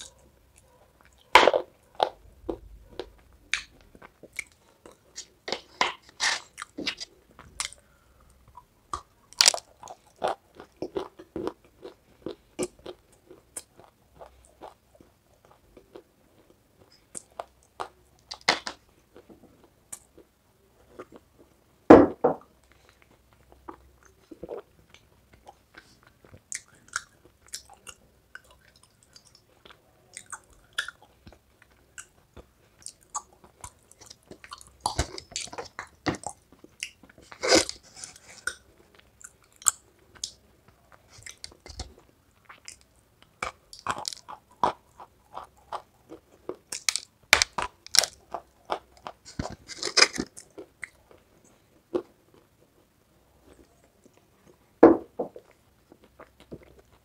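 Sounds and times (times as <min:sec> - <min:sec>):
crunchy biting and chewing: 0:43.4 - 0:51.2.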